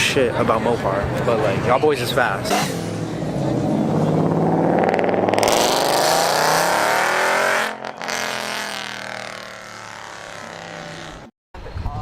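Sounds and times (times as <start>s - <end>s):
car engine accelerating hard: 2.7s - 11.3s.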